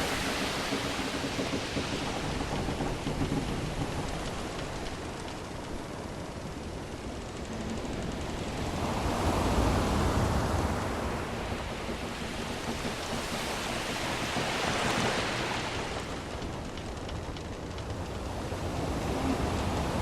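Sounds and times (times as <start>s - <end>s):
sea waves washing in: 0.0s - 20.0s.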